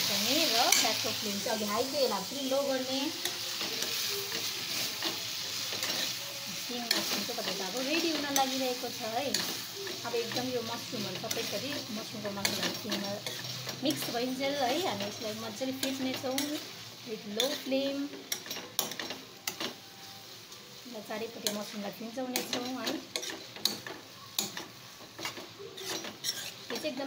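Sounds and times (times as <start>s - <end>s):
noodles sizzling in a pan: 0.0s - 27.0s
metal spatula scraping a pan: 0.1s - 20.2s, 21.0s - 27.0s.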